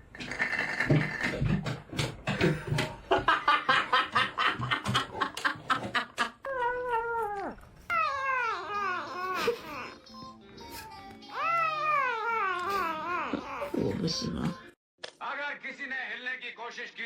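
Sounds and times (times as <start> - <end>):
cat meowing: 6.5 - 9.3.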